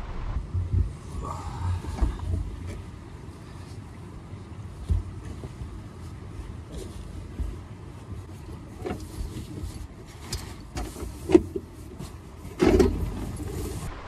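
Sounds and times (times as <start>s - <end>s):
wind buffeting microphone: 0.0s - 3.3s.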